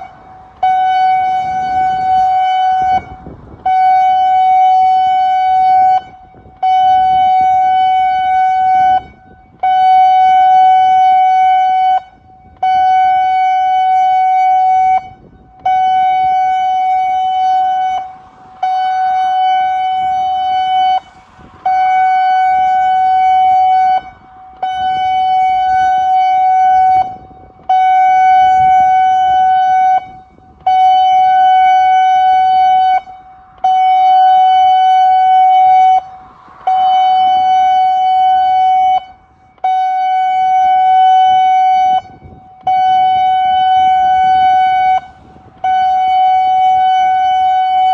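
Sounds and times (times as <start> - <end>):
pulsing warning siren: 0.0 - 47.9.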